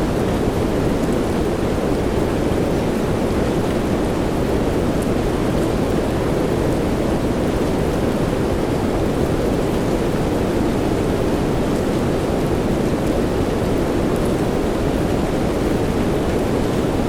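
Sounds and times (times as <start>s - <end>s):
soft rain: 0.0s - 17.0s.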